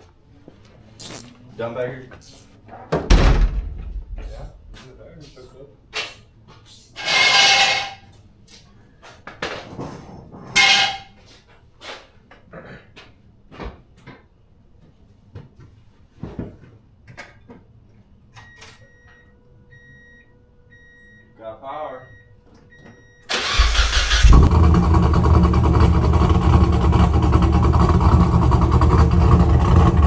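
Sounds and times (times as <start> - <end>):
faint electronic beep: 18.4 - 23.3.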